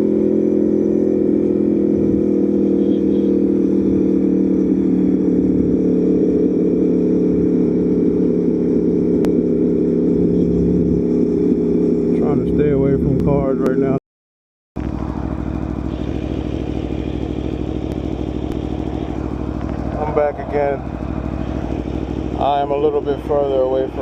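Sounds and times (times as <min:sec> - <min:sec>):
motorcycle engine cruising: 0:00.0 - 0:14.0, 0:14.8 - 0:24.0.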